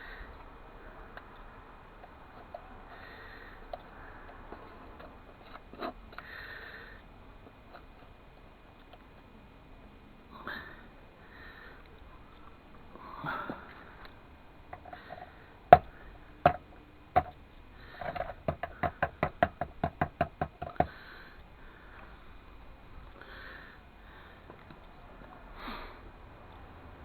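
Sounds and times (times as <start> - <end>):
taps on hard object: 15.7 - 17.4, 18.0 - 21.0.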